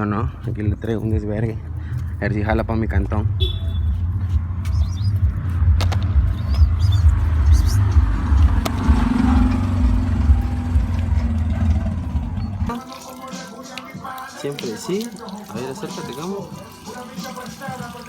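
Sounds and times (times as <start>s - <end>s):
street traffic rumble: 0.0s - 12.7s
vehicle engine passing: 3.9s - 12.7s.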